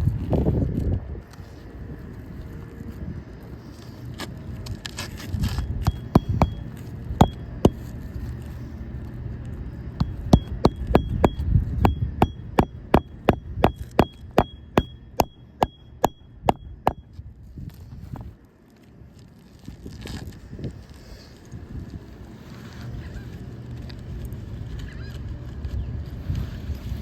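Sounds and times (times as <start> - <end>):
hammer striking roofing nails: 5.8 - 6.6, 7.2 - 7.9, 10.0 - 17.0.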